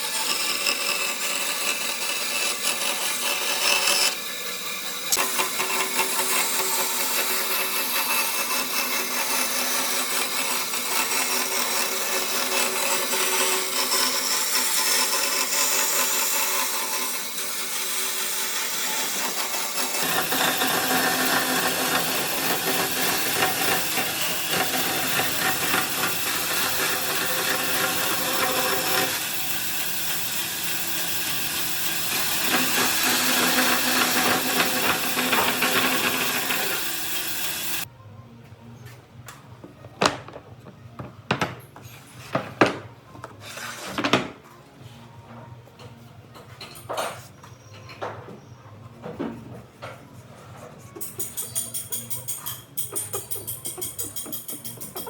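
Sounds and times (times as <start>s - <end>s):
power tool working wood: 0.0s - 37.9s.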